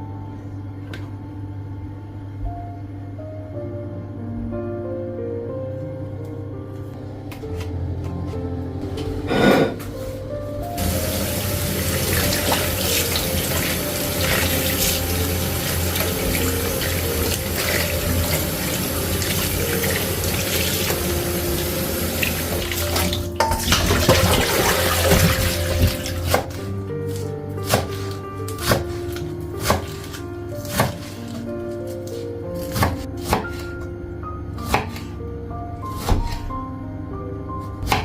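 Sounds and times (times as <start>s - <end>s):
soft background music: 0.0s - 38.0s
knife chopping on cutting board: 26.2s - 31.2s, 32.1s - 33.8s, 34.7s - 35.1s.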